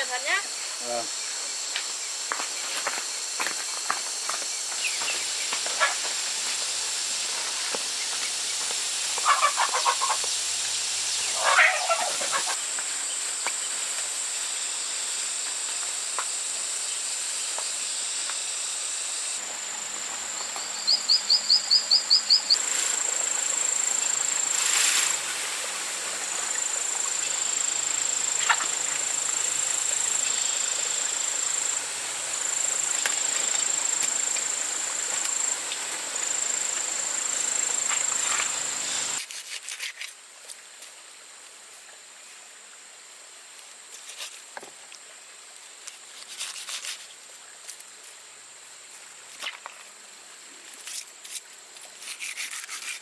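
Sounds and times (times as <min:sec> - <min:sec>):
high-pitched insect drone: 0:00.0 - 0:39.2.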